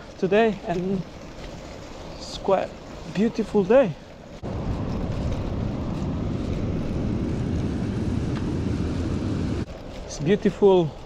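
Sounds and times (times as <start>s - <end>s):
wind buffeting microphone: 4.2s - 11.0s.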